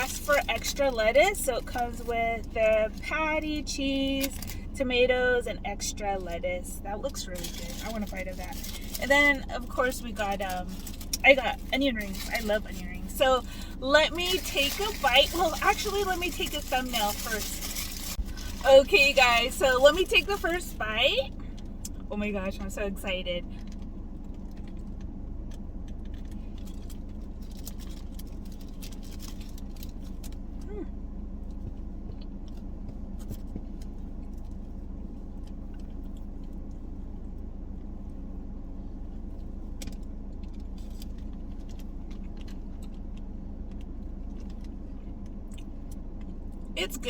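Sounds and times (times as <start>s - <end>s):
car engine idling: 0.0s - 47.0s
paper wrapper crinkling: 7.1s - 20.8s.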